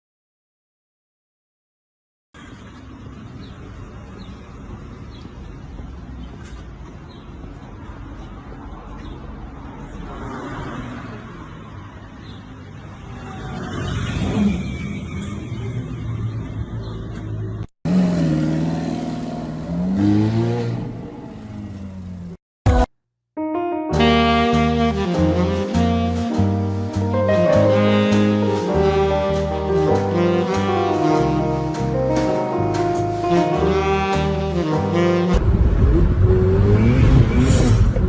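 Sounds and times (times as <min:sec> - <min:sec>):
car engine revving: 0:17.9 - 0:22.4, 0:35.3 - 0:38.0.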